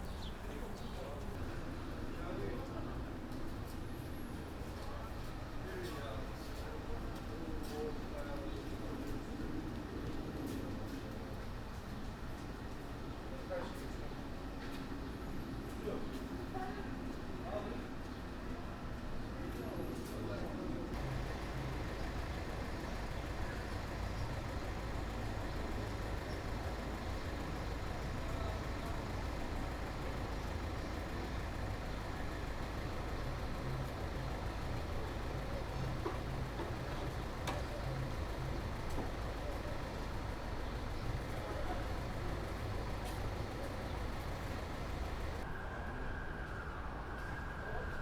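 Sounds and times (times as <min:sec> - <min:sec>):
city background noise: 0:00.0 - 0:48.0
road traffic rumble: 0:19.3 - 0:47.8.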